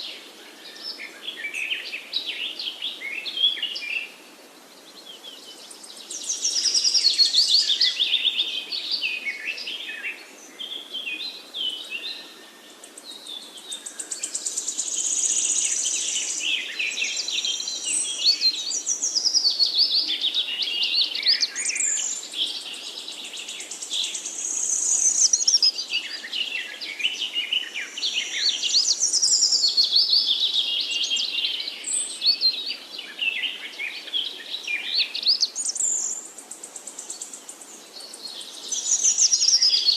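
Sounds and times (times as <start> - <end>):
birds singing and chirping: 0.0 - 39.9.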